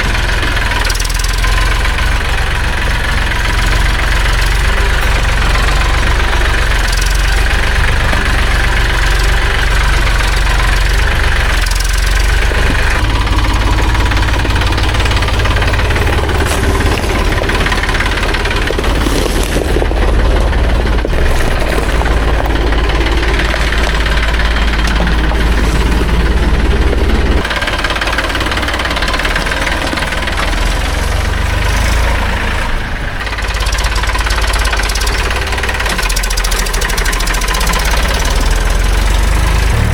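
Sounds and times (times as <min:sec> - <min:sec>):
tractor diesel engine rumbling: 0:00.0 - 0:39.9.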